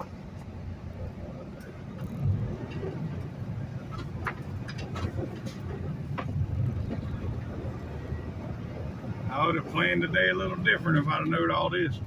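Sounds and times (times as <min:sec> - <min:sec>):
diesel truck engine and road rumble: 0:00.0 - 0:12.0
light clicks and rattles: 0:01.6 - 0:07.2.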